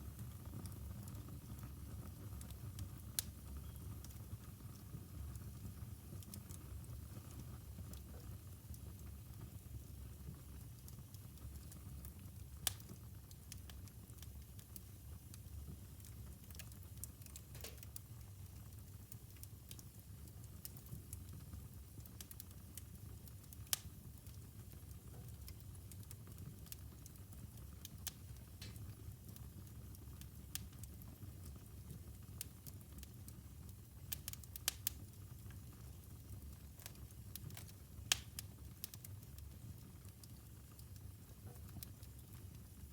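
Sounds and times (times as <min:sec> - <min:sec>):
fire crackles and pops: 0:00.0 - 0:42.9
fire rumbling: 0:16.3 - 0:18.1.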